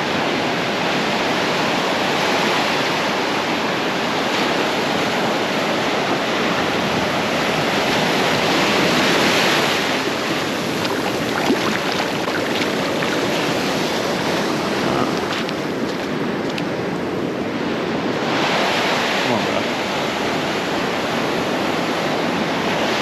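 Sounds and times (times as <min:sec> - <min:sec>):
ocean surf on a beach: 0:00.0 - 0:23.0
wind on microphone: 0:04.4 - 0:18.8.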